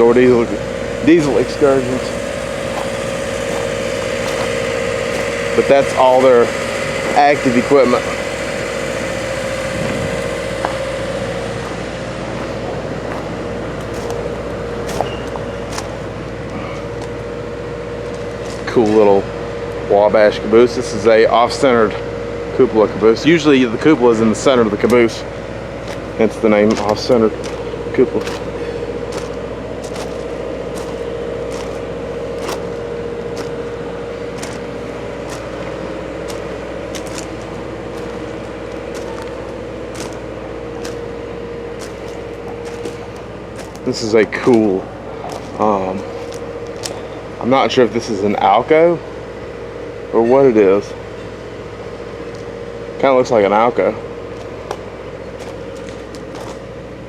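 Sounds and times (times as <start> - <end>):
wavering hum: 0.0 - 19.9, 23.8 - 48.3
engine idling: 0.0 - 57.0
footsteps crunching on gravel: 0.6 - 17.2, 24.8 - 47.4, 54.3 - 56.8.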